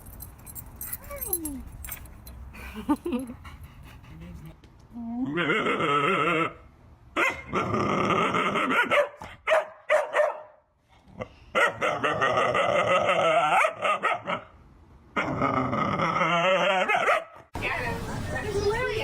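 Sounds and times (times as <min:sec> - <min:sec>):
dog barking and vocalizing: 0:07.2 - 0:10.6, 0:11.5 - 0:14.5, 0:16.0 - 0:17.5.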